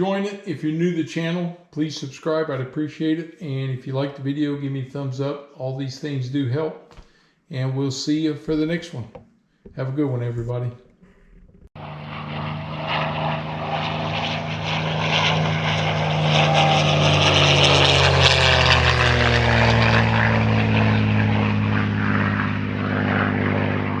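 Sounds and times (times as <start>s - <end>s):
piston engines droning: 10.4s - 24.0s.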